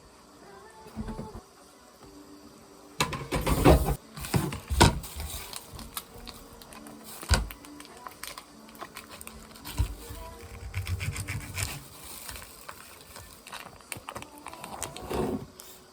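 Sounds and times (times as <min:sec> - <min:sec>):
kitchen utensils knocking and clattering: 0:03.0 - 0:05.0.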